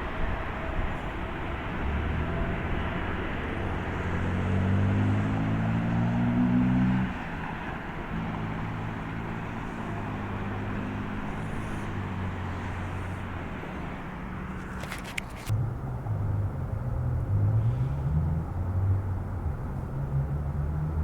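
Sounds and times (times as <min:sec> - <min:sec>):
distant jet engines rumbling: 0:07.1 - 0:19.8.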